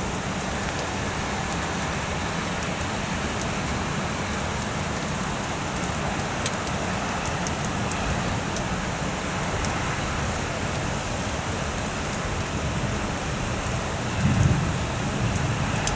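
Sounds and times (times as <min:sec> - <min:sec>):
steady rain falling: 0:00.0 - 0:15.9
faint drip ticks: 0:00.3 - 0:10.0, 0:15.2 - 0:15.9
low thunder rumble: 0:12.6 - 0:15.9.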